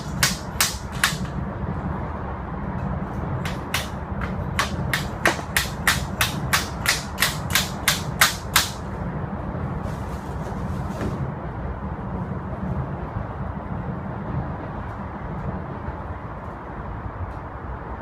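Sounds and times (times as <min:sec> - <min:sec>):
hammer striking metal: 0:00.0 - 0:01.4, 0:03.4 - 0:08.9.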